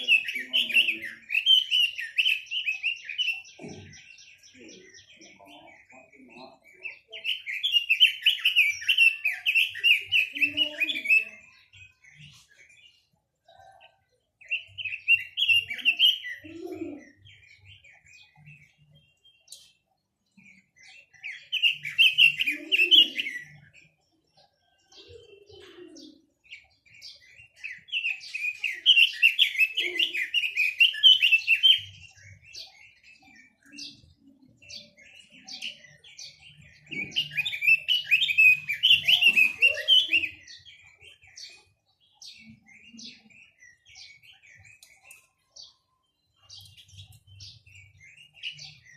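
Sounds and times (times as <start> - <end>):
bird chirps: 0.0 - 48.9
songbird warbling: 24.6 - 48.9.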